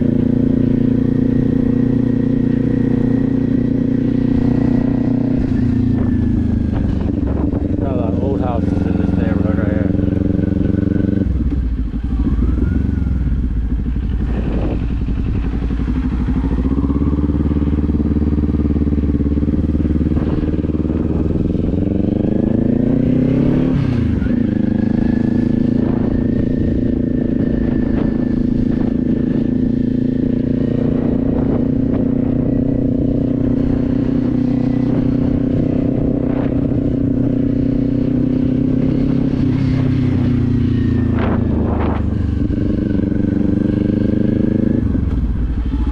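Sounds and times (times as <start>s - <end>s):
motorcycle engine accelerating: 0.0s - 45.9s.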